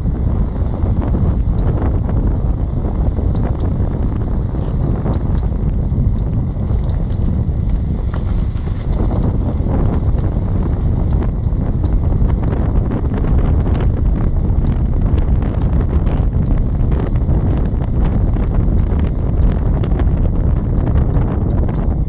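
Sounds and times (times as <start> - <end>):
car road and wind rumble: 0.0 - 22.0.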